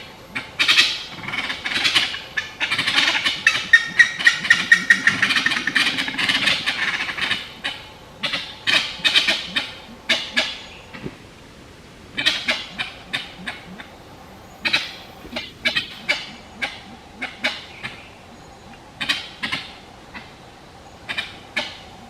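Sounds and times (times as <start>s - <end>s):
birds chattering: 0.0s - 22.0s
high repeated bird notes: 3.4s - 7.4s.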